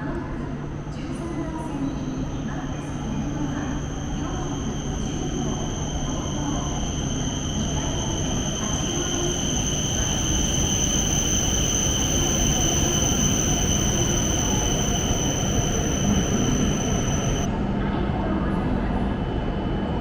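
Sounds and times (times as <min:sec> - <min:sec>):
thin high whine: 0:02.2 - 0:17.5.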